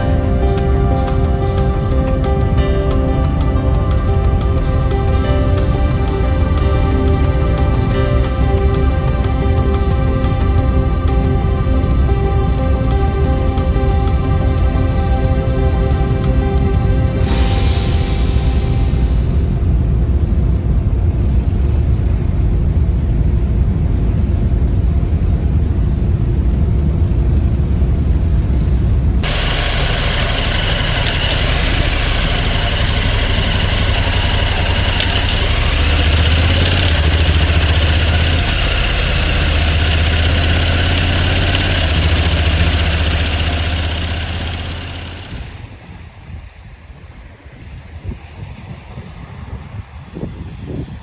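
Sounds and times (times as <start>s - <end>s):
hiss: 0.0s - 20.5s, 29.2s - 45.8s
engine rumbling: 0.0s - 51.0s.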